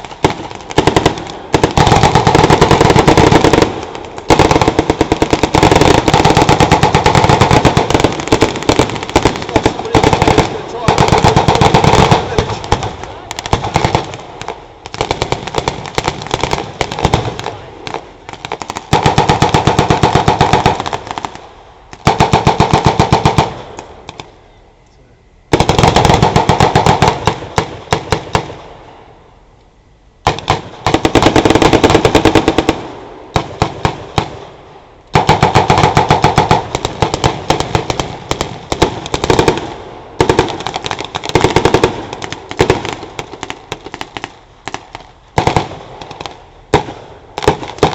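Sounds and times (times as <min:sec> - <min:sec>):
automatic gunfire bursts: 0:00.2 - 0:14.2, 0:18.5 - 0:21.3, 0:25.5 - 0:28.5, 0:30.3 - 0:32.8.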